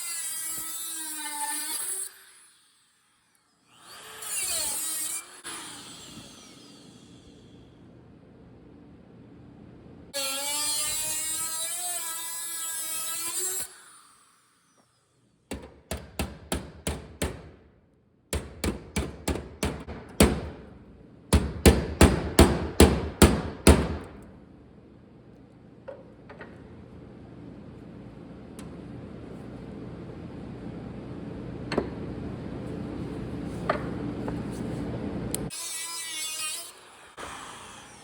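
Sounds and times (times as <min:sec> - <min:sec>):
hammer beating on sheet steel: 0:15.5 - 0:17.6, 0:18.3 - 0:20.7, 0:21.3 - 0:24.2.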